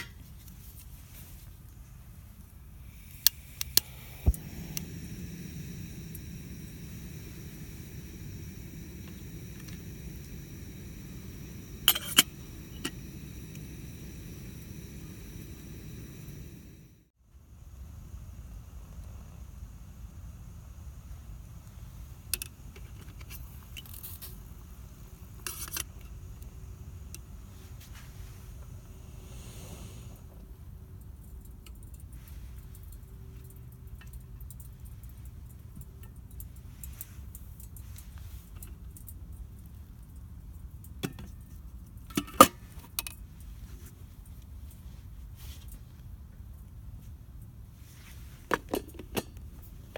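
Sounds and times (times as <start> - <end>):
steady low rumble: 2.0 - 21.3
campfire crackling and popping: 2.9 - 17.0.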